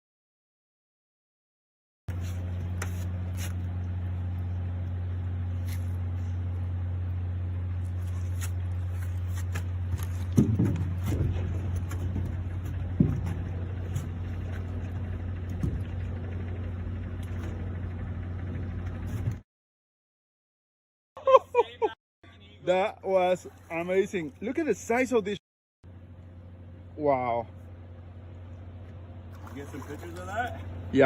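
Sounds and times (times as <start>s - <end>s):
boat engine idling: 2.1s - 19.4s, 21.8s - 31.0s
knocks: 10.2s - 14.3s.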